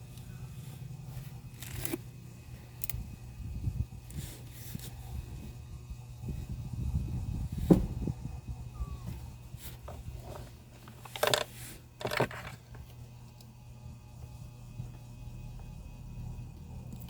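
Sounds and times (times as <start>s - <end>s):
low hum: 0.0s - 17.0s
rustling scrapes: 4.1s - 5.1s.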